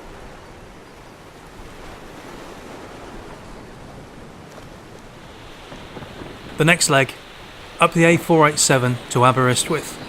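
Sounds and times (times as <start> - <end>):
sea surf rushing: 0.0 - 10.0
wind: 0.0 - 10.0.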